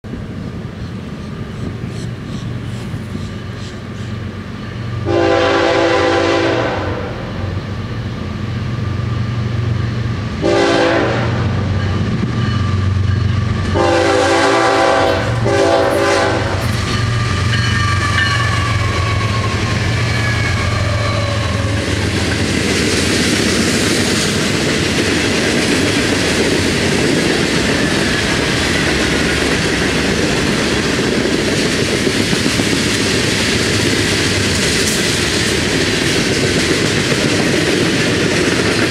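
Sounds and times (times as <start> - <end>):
steel wheels on rail: 0.0 - 38.9
locomotive air horn blasts: 5.0 - 7.5, 10.4 - 11.7, 13.7 - 16.7.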